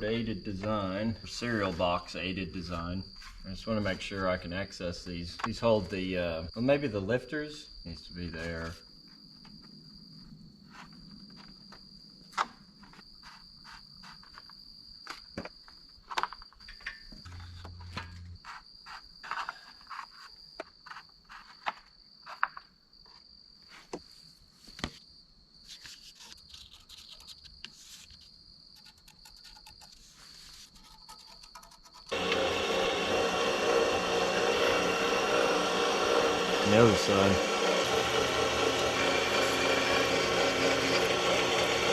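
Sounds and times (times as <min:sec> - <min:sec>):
cricket trilling: 0:24.4 - 0:32.1.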